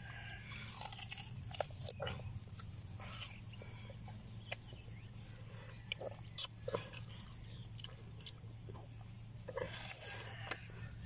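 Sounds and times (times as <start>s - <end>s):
steady low hum: 0.0s - 11.0s
watermelon crunching and chewing: 0.0s - 11.0s.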